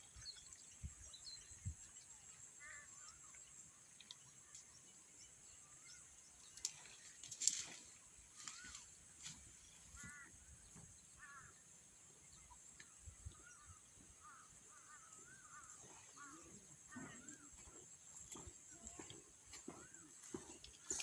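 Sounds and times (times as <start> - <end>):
faint short bird calls: 11.2 - 11.6.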